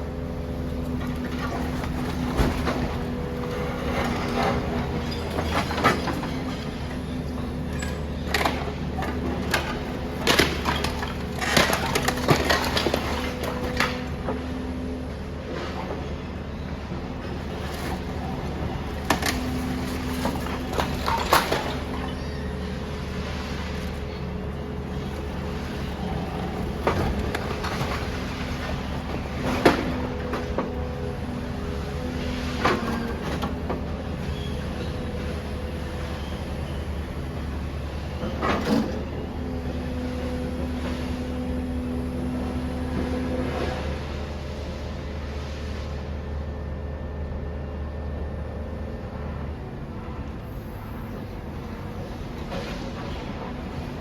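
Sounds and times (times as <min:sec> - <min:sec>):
heavy machinery engine hum: 0:00.0 - 0:54.0
metal and rubble clanking: 0:00.8 - 0:14.6, 0:17.3 - 0:41.8.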